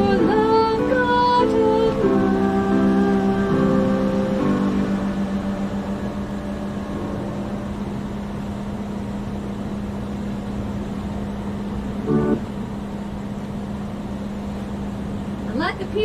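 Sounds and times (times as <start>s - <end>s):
music: 0.0s - 8.5s, 12.0s - 12.4s
idling vehicles hum: 0.0s - 16.0s.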